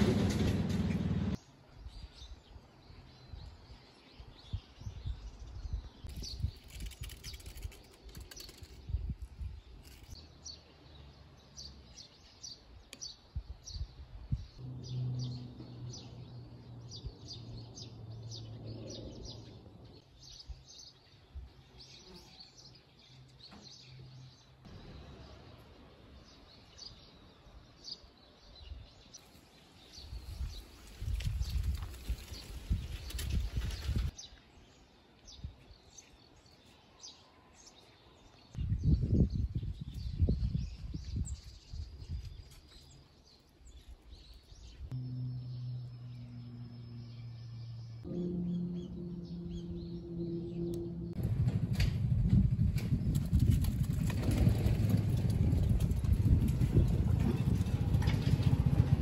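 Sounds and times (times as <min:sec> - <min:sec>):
faint outdoor background noise: 0:00.0 - 0:59.0
small birds chirping: 0:01.4 - 0:51.2
low steady hum: 0:44.9 - 0:52.9.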